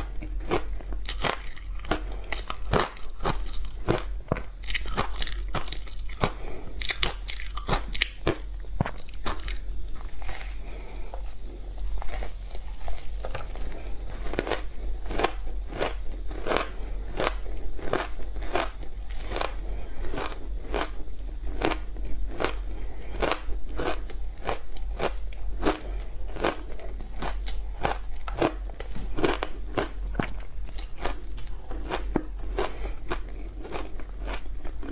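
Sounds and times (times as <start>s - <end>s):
crunching frozen ice: 0.0s - 11.0s
low steady hum: 0.0s - 34.9s.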